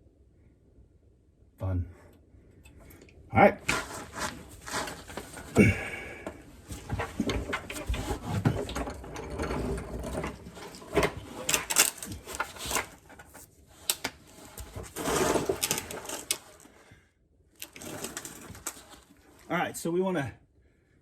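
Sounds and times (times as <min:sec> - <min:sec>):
metal scraping: 0:03.6 - 0:16.7.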